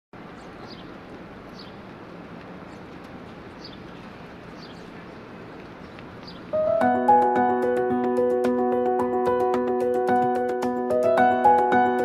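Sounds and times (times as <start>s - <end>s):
birds chirping: 0.2s - 7.4s
music: 6.6s - 12.0s.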